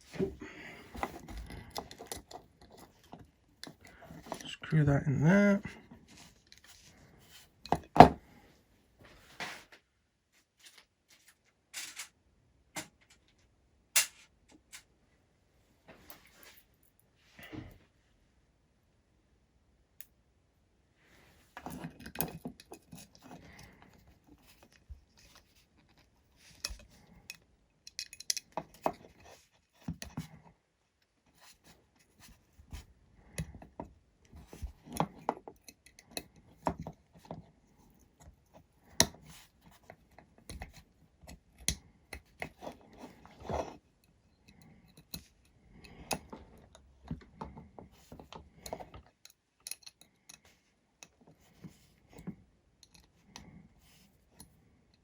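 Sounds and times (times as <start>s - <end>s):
clicks and scrapes of small tools: 0.9s - 4.5s, 11.8s - 12.2s, 21.6s - 30.2s, 33.4s - 37.4s, 38.0s - 53.6s.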